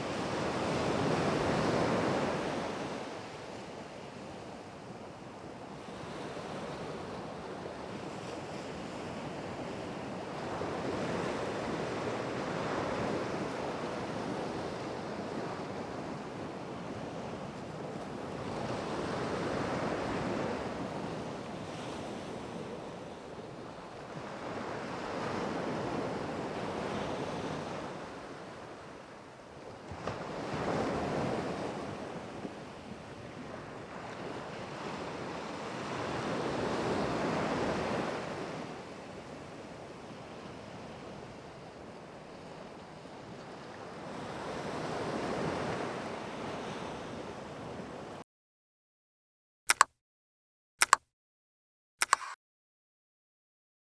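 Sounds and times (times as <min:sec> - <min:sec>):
ocean surf breaking on shore: 0:00.1 - 0:03.5.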